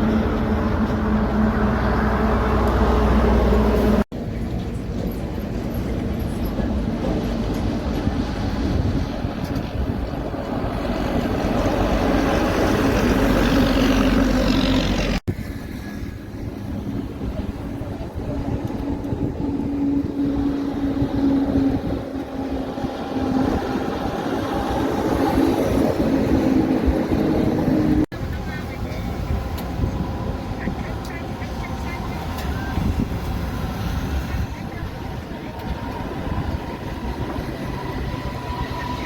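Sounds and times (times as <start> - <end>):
heavy trucks driving past: 0.0 - 39.0.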